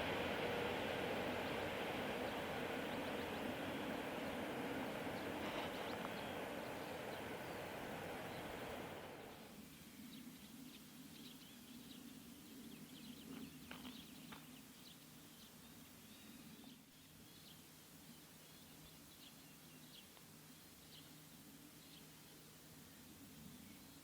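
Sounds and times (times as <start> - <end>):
low steady hum: 0.0 - 10.6
small birds chirping: 1.5 - 24.0.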